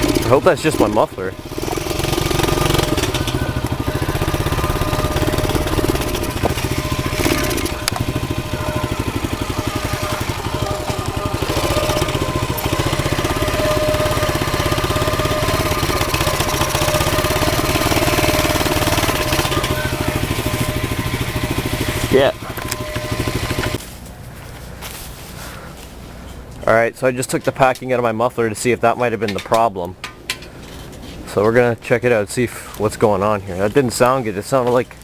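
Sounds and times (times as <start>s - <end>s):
motorbike engine idling: 0.0s - 24.7s.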